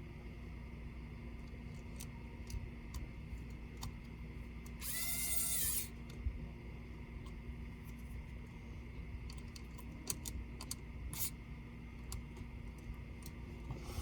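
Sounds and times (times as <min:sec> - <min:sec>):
electric screwdriver whirring: 0:04.7 - 0:06.0.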